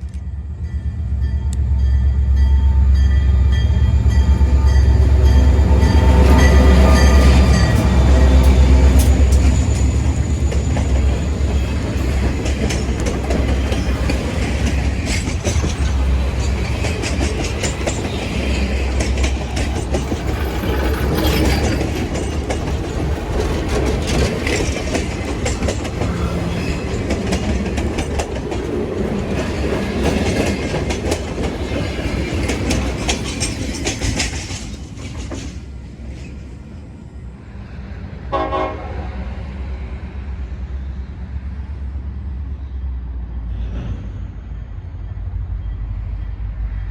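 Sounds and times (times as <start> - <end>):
train passing rumble: 0.0 - 46.9
wheels clicking over rail joints: 6.0 - 36.4.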